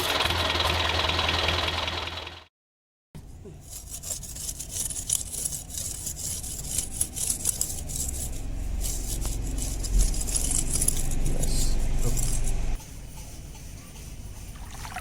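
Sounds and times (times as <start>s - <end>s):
motor rattling and clicking: 4.7s - 12.8s
deep rumble: 8.0s - 12.8s.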